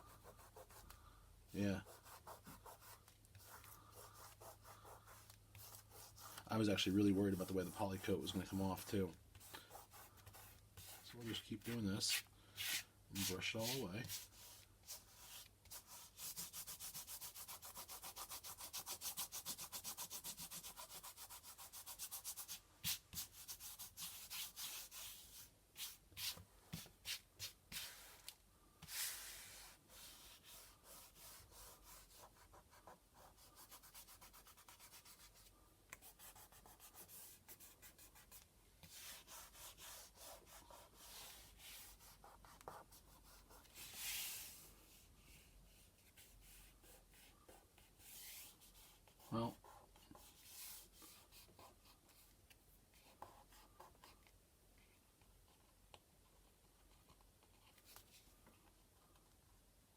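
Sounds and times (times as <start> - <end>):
scratchy rubbing on canvas: 1.8 - 28.2, 28.8 - 44.6.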